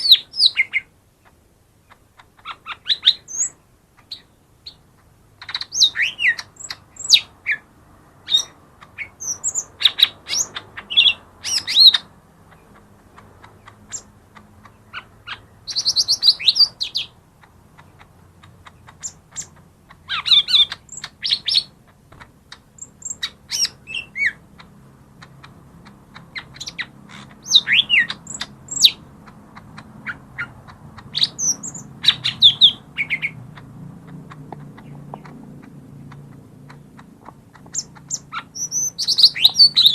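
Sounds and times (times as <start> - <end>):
bird chirping and whistling: 5.4 - 7.6, 8.3 - 12.0, 14.9 - 17.1, 20.1 - 21.7, 22.8 - 24.4, 26.4 - 29.0, 31.1 - 33.4, 37.7 - 39.9.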